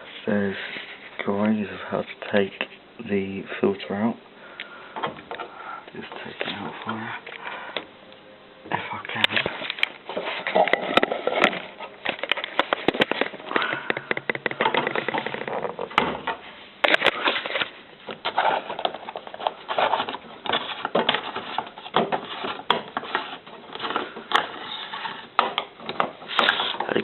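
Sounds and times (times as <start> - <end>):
plastic clicking and scraping: 9.2 - 27.0.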